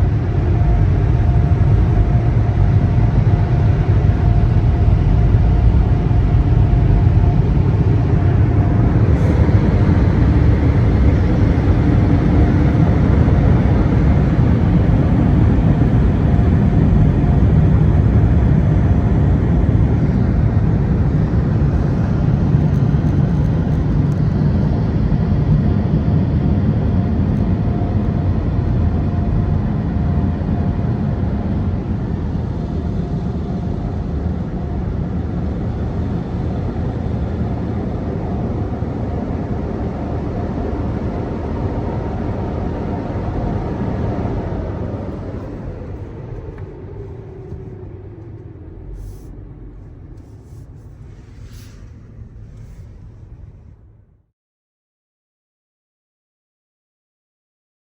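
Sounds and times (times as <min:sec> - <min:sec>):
car wash rushing rumble: 0:00.0 - 0:25.2, 0:39.6 - 0:54.0.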